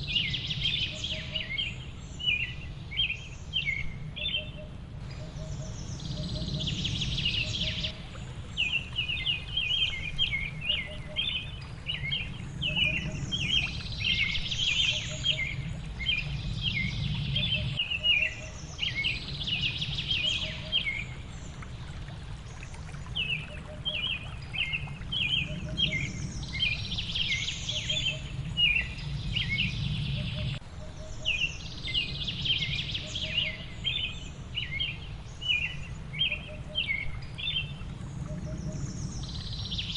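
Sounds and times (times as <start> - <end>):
songbirds chirping: 0.0 - 39.9
low rushing background: 1.8 - 17.9, 24.4 - 30.9.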